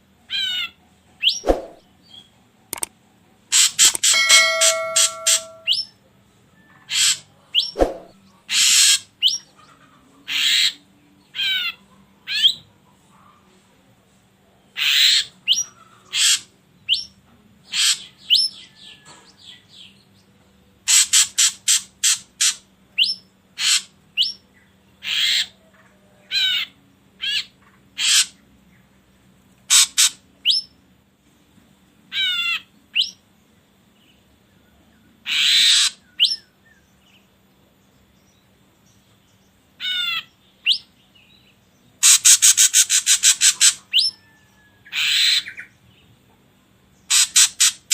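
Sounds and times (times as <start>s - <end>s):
bird harsh calls: 3.5s - 5.9s, 6.8s - 12.6s, 14.8s - 17.1s, 20.9s - 24.4s, 25.0s - 28.4s, 29.7s - 30.7s, 32.1s - 33.2s, 35.2s - 36.8s, 39.8s - 40.9s, 42.0s - 45.8s, 47.1s - 47.9s.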